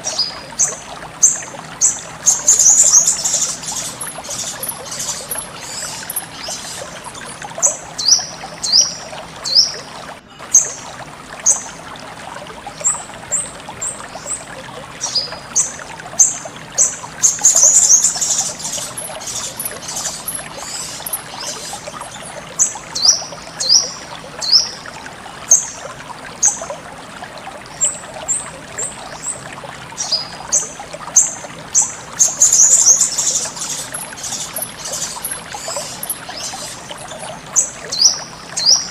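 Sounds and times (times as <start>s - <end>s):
songbird chirping: 0.0s - 9.8s, 15.0s - 24.8s, 31.8s - 38.9s
water trickling: 0.0s - 38.9s.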